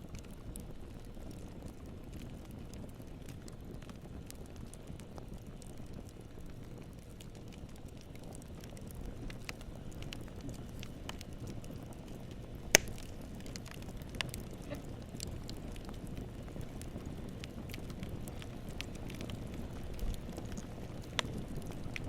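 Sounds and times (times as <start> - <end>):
campfire crackling: 0.0 - 22.0
loud sharp pop: 12.8 - 13.0.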